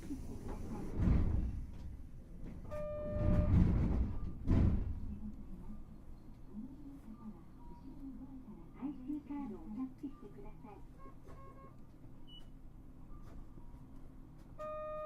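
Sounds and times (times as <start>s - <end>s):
tram rumbling and thumping: 0.0s - 7.2s
short beep: 2.7s - 3.5s, 14.6s - 15.0s.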